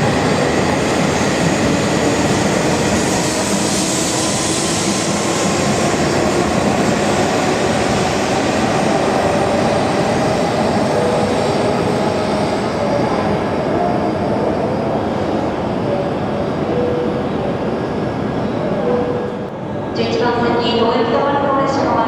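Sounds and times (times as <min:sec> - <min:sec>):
train running noise: 0:00.0 - 0:22.0.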